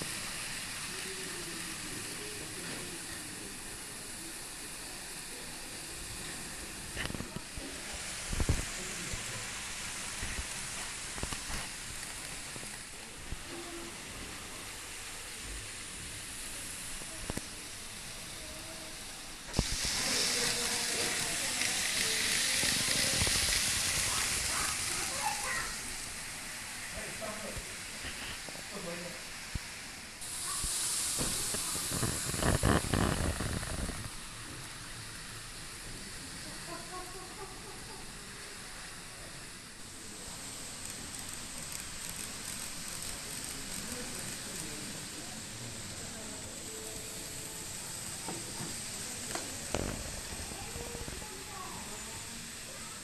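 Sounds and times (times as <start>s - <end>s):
model train running: 0.0s - 53.0s
steady hiss: 0.0s - 53.0s.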